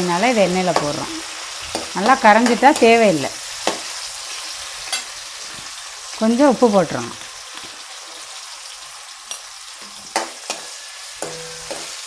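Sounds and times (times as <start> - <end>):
onions sizzling in hot oil: 0.0 - 12.0
ladle clinking and scraping pan: 9.3 - 12.0.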